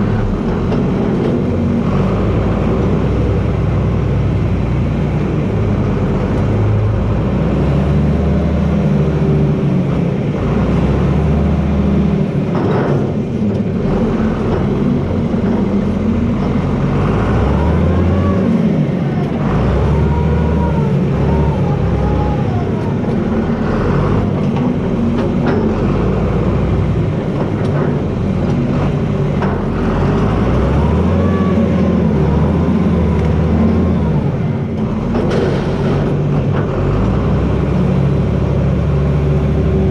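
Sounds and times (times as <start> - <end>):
tractor diesel engine under load: 0.0 - 39.9
thin wavering squeals: 17.8 - 23.6.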